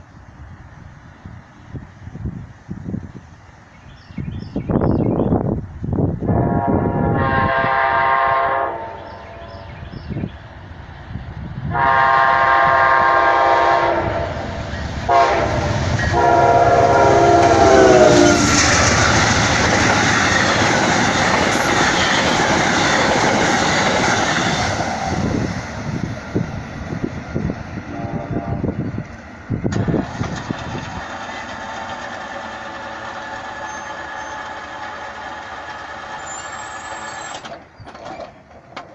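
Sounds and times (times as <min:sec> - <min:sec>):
train horn blasts: 0:06.2 - 0:09.8, 0:11.7 - 0:18.7, 0:27.9 - 0:28.8
train wheels clattering on rails: 0:14.4 - 0:27.6, 0:29.2 - 0:38.9.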